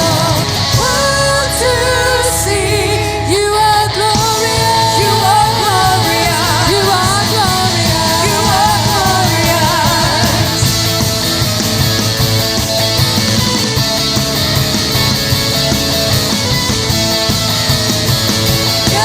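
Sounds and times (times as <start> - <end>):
steady drum beat: 0.0 - 1.8, 4.2 - 19.0
worship band music with singing: 0.0 - 19.0.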